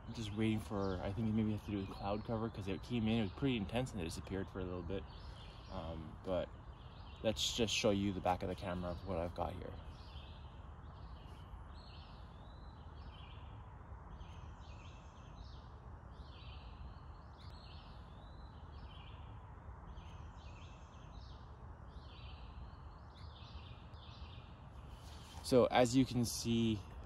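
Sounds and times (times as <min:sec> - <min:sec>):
songbirds singing: 0:00.0 - 0:27.0.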